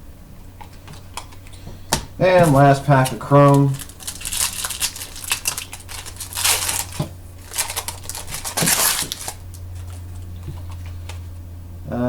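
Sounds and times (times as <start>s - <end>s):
foil wrapper tearing and crinkling: 2.2s - 10.7s.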